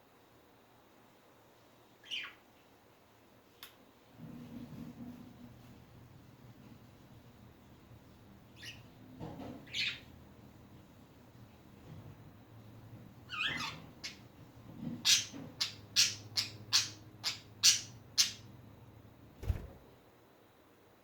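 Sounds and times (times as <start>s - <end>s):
budgerigars chirping: 2.0s - 2.4s.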